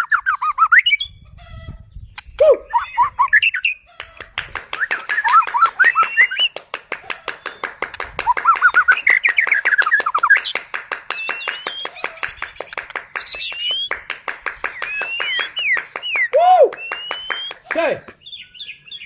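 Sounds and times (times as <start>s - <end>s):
bird singing whistled notes: 0.0s - 1.2s, 1.8s - 3.8s, 4.8s - 6.6s, 11.1s - 14.0s, 14.6s - 19.0s
sharp bird clicks: 2.0s - 2.8s, 4.0s - 6.6s, 7.4s - 18.4s.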